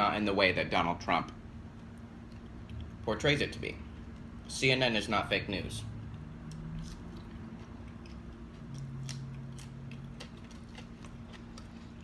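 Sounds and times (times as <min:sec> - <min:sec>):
chewing french fries: 0:01.2 - 0:03.0, 0:06.0 - 0:12.0.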